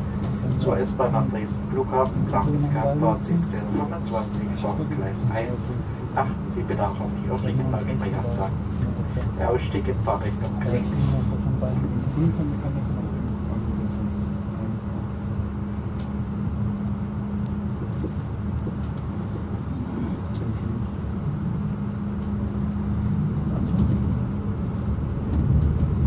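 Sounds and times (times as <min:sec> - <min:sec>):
low hum: 0:00.0 - 0:26.0
train rolling rumble: 0:00.0 - 0:26.0.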